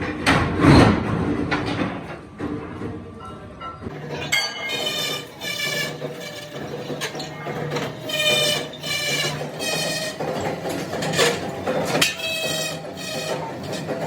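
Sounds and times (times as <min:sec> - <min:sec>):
sharp metal clanks: 0:04.2 - 0:05.2.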